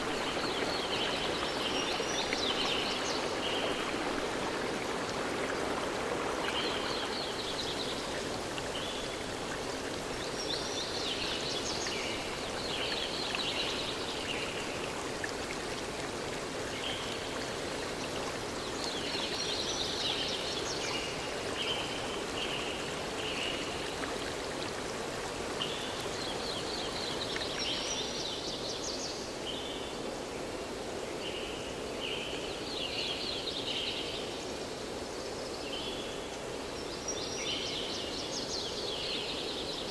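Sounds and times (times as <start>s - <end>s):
stream water flowing: 0.0s - 29.4s.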